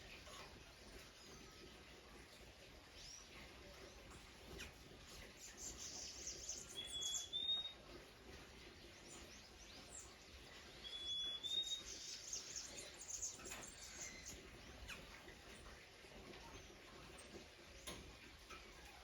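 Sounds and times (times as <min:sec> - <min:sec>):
faint high bird chirps: 0:04.6 - 0:07.8, 0:09.0 - 0:15.7.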